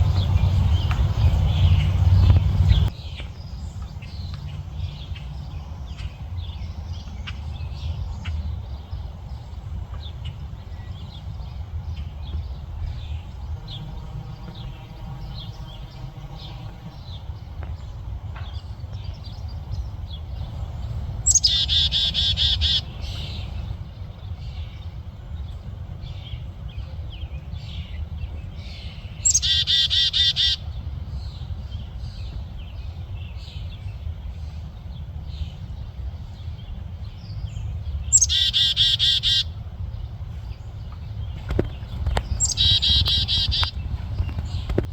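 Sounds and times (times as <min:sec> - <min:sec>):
low background rumble: 0:00.0 - 0:44.9
small birds chirping: 0:00.0 - 0:44.9
harsh buzzy bird call: 0:13.1 - 0:17.3, 0:21.2 - 0:23.7, 0:38.2 - 0:39.5, 0:42.4 - 0:43.8.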